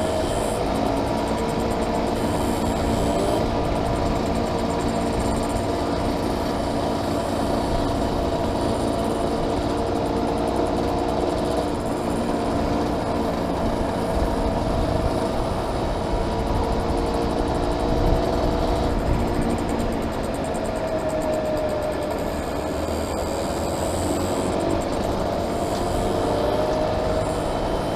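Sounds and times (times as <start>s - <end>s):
motorcycle engine running: 0.0s - 27.9s
wind buffeting microphone: 11.4s - 27.9s.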